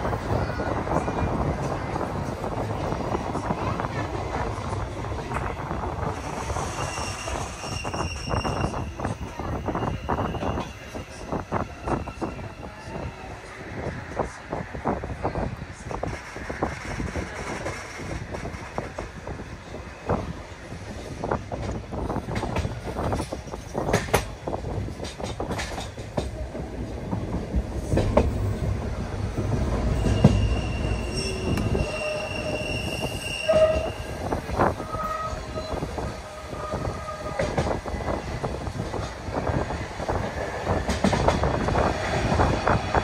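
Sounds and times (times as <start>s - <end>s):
train low rumble: 0.0s - 43.0s
train wheels squealing: 6.2s - 13.0s, 29.8s - 37.4s
train wheels clicking on rails: 15.8s - 33.1s, 35.8s - 43.0s.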